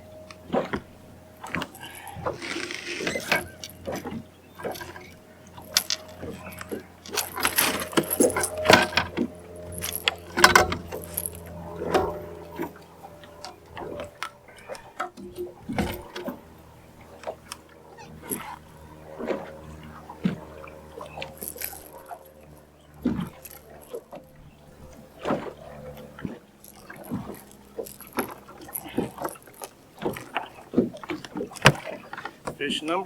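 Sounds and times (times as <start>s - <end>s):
steady low hum: 0.0s - 33.0s
fishing tackle clattering: 1.4s - 12.8s, 21.3s - 22.0s.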